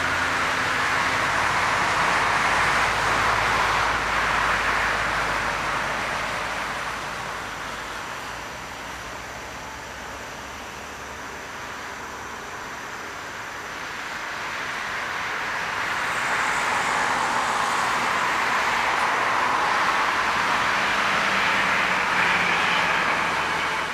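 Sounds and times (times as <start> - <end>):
jet engine noise: 0.0 - 23.9.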